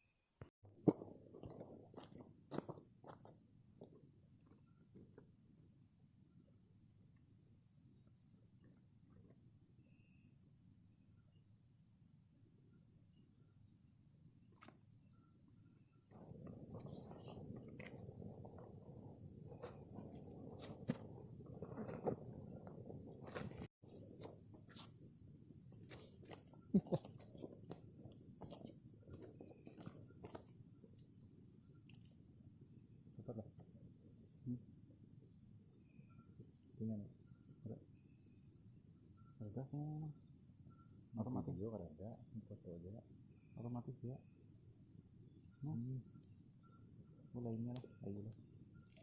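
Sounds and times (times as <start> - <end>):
insects trilling: 0.0 - 49.0.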